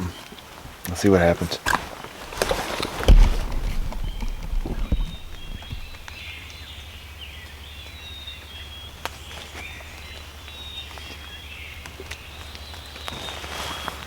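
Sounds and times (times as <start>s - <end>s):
songbirds singing faintly: 0.0s - 14.0s
sharp clicks: 2.4s - 6.2s
steady low rumble: 3.1s - 6.3s.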